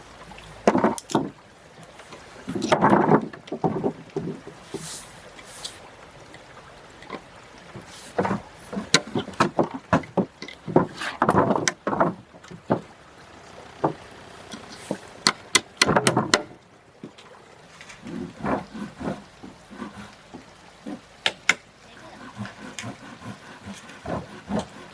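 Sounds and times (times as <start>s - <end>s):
sharp knocks and clatters: 0.6s - 1.4s, 2.5s - 4.8s, 7.8s - 12.9s, 13.8s - 17.2s.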